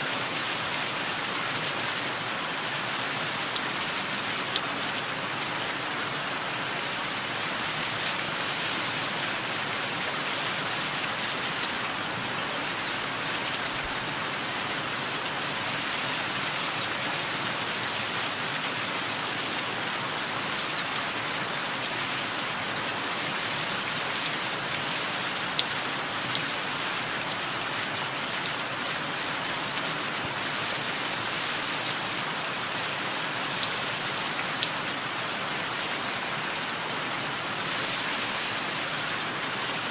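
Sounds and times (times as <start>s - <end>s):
rain hiss: 0.0s - 39.9s
small birds chirping: 1.4s - 2.6s, 4.5s - 7.8s, 8.4s - 9.2s, 10.6s - 11.2s, 11.9s - 15.1s, 16.3s - 18.4s, 20.2s - 21.9s, 22.6s - 24.3s, 26.6s - 27.9s, 28.5s - 30.5s, 31.1s - 39.2s.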